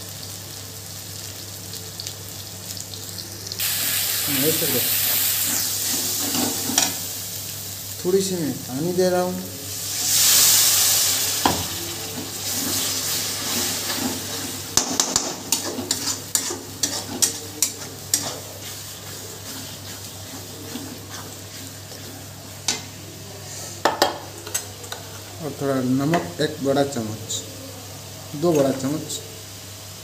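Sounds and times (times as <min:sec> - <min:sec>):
spices sizzling in oil: 0:00.0 - 0:30.0
spoon scraping a pan: 0:05.1 - 0:07.0, 0:11.4 - 0:22.9.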